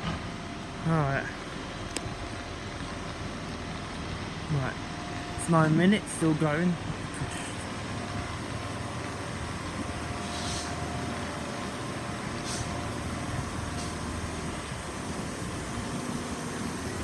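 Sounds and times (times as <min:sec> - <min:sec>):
low mechanical hum: 0:00.0 - 0:17.0
short hisses: 0:10.2 - 0:10.8, 0:12.4 - 0:12.8.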